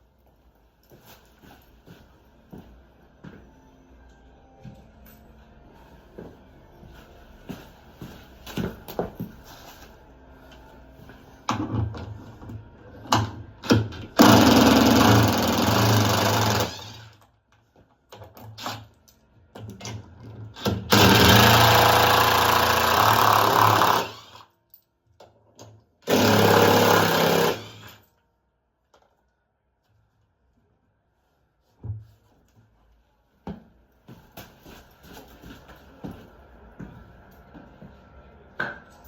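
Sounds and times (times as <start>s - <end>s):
power screwdriver running: 14.2s - 17.1s, 20.9s - 24.4s, 26.1s - 27.9s.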